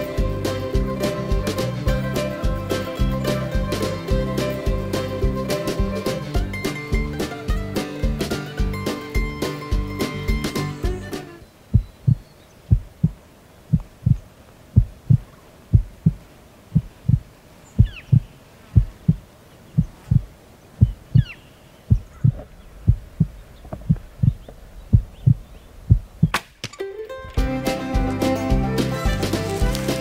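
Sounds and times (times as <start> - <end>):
heartbeat double thump: 11.7 - 19.2, 19.8 - 21.3, 21.9 - 26.4
sharp snap: 26.2 - 26.9.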